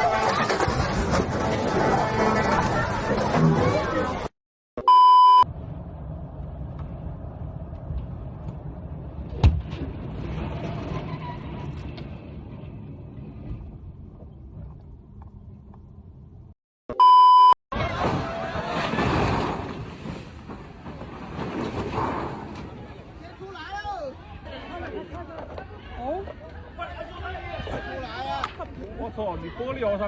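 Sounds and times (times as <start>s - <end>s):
vehicle rumble: 5.4s - 16.6s.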